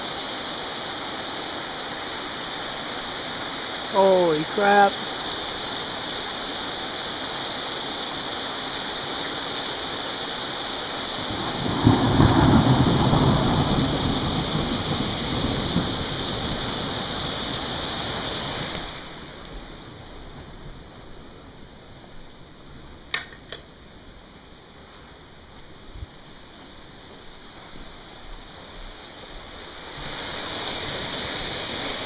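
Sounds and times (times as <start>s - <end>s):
heavy rain pelting a car: 0.0s - 23.0s, 24.7s - 32.0s
thunder rumble: 11.2s - 18.2s.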